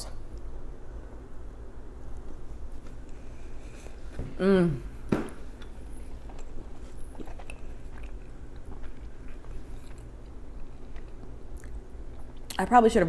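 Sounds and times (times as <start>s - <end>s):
chewing: 5.6s - 12.6s.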